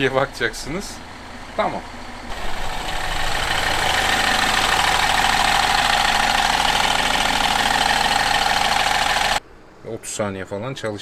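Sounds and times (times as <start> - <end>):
car engine idling: 0.1 - 9.4
steady whine: 2.3 - 9.4.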